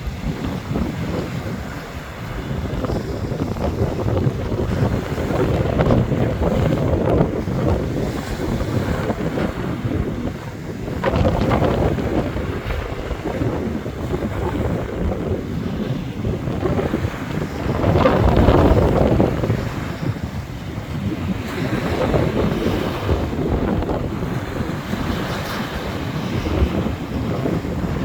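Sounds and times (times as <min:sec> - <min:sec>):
surf breaking on a beach: 0:00.0 - 0:28.0
wind buffeting microphone: 0:00.0 - 0:28.0.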